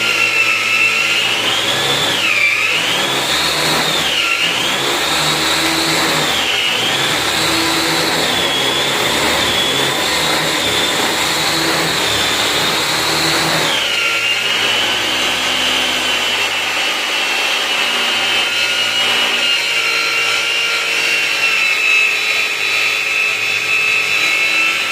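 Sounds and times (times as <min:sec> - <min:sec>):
electric motor whining: 0:00.0 - 0:24.9
rough mechanical rattle: 0:01.1 - 0:17.0.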